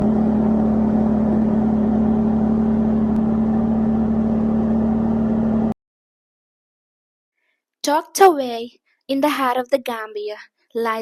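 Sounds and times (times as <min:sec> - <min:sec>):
engine humming steadily: 0:00.0 - 0:05.8.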